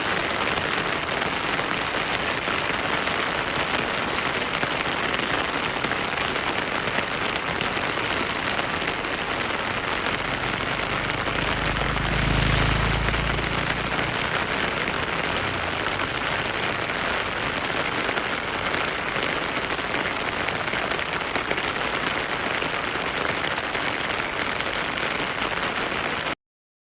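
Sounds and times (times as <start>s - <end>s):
heavy rain: 0.0s - 26.4s
low rumble: 10.7s - 15.1s.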